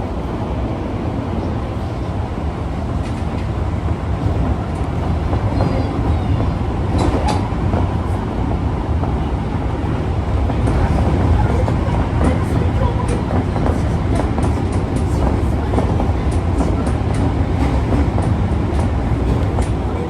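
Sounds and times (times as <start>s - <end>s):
subway car wheels rumbling: 0.0s - 20.0s.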